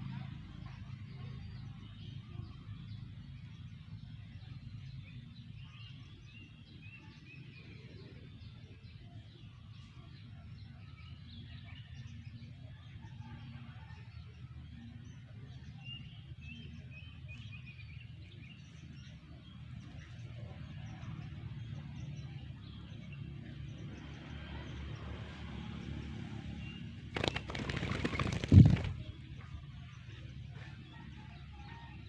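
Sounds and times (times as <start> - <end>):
low outdoor background: 0.0 - 32.0
faint birds chirping: 26.6 - 32.0
loud rustling burst: 27.1 - 29.0.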